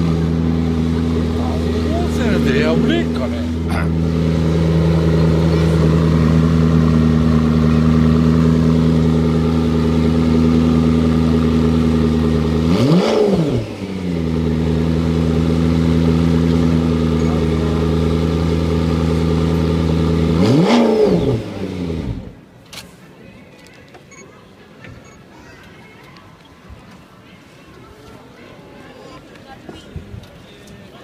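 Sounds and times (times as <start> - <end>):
car engine idling and revving: 0.0 - 22.5.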